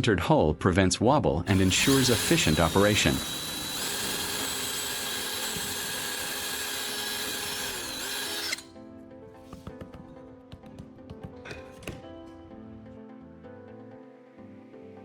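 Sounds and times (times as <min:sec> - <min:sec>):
electric drill boring cardboard: 0:01.5 - 0:08.7
quiet background music: 0:08.6 - 0:15.0.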